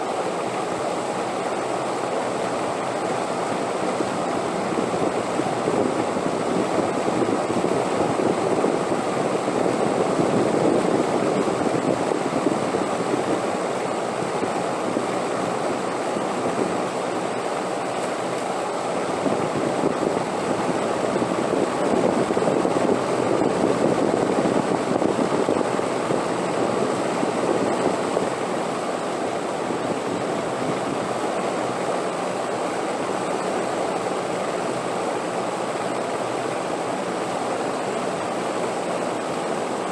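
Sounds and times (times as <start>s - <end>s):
steady rushing wind: 0.0s - 39.9s.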